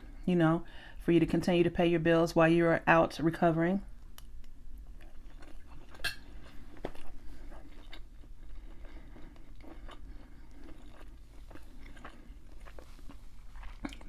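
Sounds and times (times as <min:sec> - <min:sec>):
person chewing food: 0:04.0 - 0:14.0.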